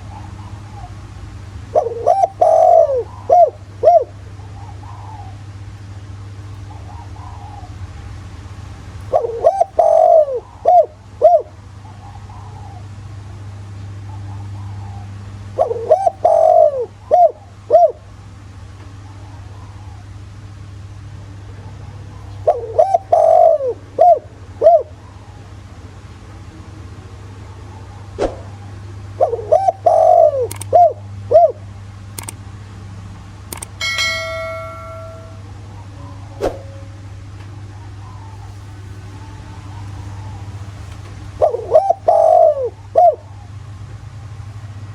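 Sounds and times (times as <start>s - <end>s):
dove cooing song: 0.0s - 8.2s, 8.8s - 13.1s, 13.7s - 18.2s, 21.6s - 25.8s, 27.0s - 31.8s, 33.8s - 43.9s
steady low hum: 0.0s - 44.9s
click: 30.5s - 30.7s, 32.2s - 32.4s, 33.5s - 33.8s
bell-like metallic ring: 33.8s - 35.6s
faint cooing: 41.4s - 43.3s.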